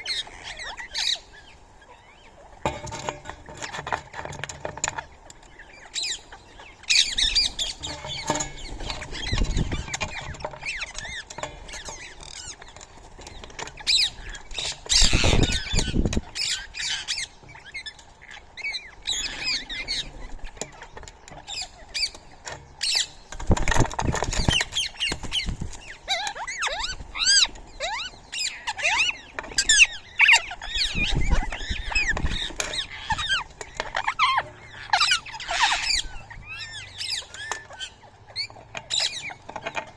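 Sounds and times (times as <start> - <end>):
birds chirping and squawking: 0.0 - 39.9
wings flapping: 23.3 - 26.0.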